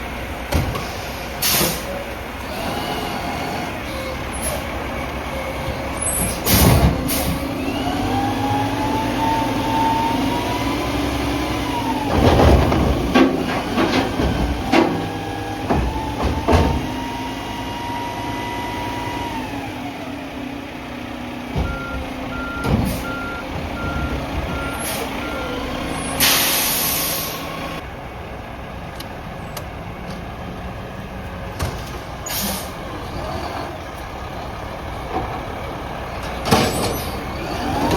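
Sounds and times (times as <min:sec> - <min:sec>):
diesel engine revving: 0:00.0 - 0:37.9
air brake hiss: 0:00.8 - 0:02.0, 0:26.0 - 0:27.4, 0:32.2 - 0:32.8
metal bangs and clanks: 0:12.0 - 0:17.0
reversing beeps: 0:21.6 - 0:26.1.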